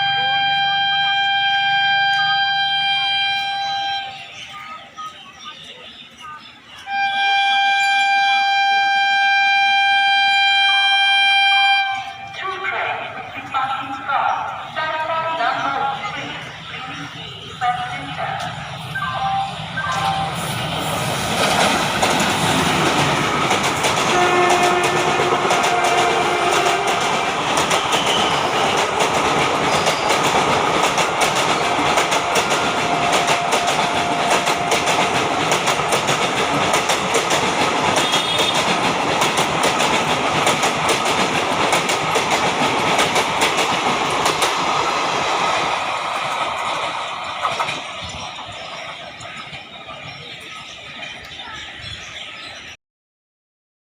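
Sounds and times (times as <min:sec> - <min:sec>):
locomotive horn: 0:00.0 - 0:04.3, 0:06.8 - 0:12.4, 0:24.0 - 0:28.5, 0:38.0 - 0:38.7
train wheels clattering over rail joints: 0:21.2 - 0:49.6.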